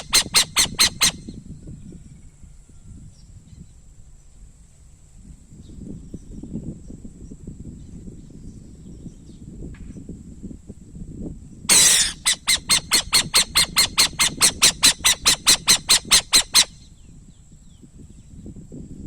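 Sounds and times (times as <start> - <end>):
owl rasping notes: 0.0 - 1.2, 11.7 - 16.7
owl screeching: 0.0 - 1.2, 11.7 - 16.8.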